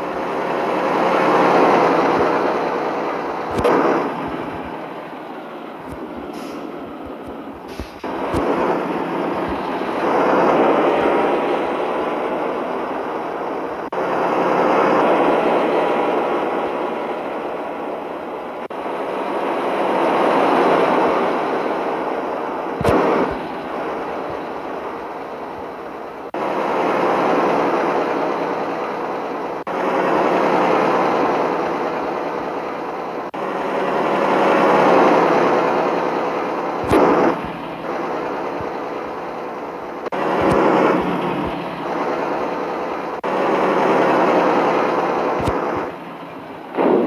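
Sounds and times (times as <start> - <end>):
truck engine and road noise: 0.0 - 47.0
sharp bang: 36.8 - 37.6, 46.7 - 47.0.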